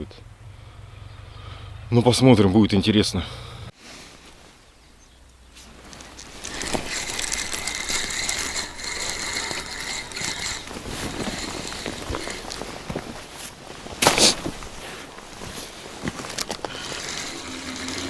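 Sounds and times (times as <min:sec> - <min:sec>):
fishing reel whirring and clicking: 0:05.8 - 0:13.3, 0:16.3 - 0:18.0.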